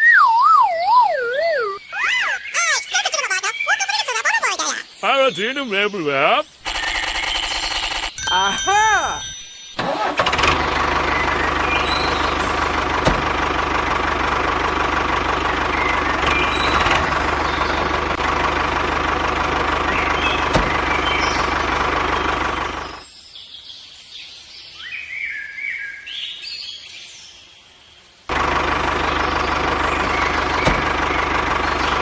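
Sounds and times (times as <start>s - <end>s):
birds chirping: 0.0s - 9.8s, 10.9s - 13.0s, 15.4s - 18.2s, 19.8s - 27.7s, 29.1s - 32.0s
engine running with low beat: 10.2s - 23.0s, 28.3s - 32.0s.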